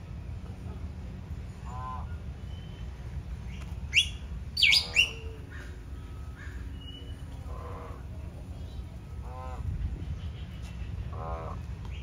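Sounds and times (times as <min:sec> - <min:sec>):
faint bird calls: 0:03.5 - 0:12.0
sharp downward bird calls: 0:03.9 - 0:05.8.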